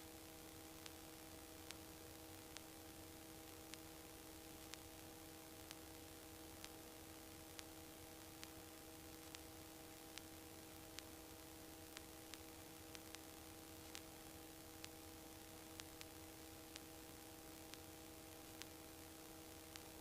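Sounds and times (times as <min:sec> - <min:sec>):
faint steady hiss: 0:00.0 - 0:20.0
low electrical hum: 0:00.0 - 0:20.0
soft ticks: 0:00.8 - 0:01.0, 0:01.6 - 0:01.8, 0:02.5 - 0:02.8, 0:03.4 - 0:05.0, 0:05.6 - 0:05.9, 0:06.6 - 0:06.8, 0:07.5 - 0:18.8, 0:19.6 - 0:20.0.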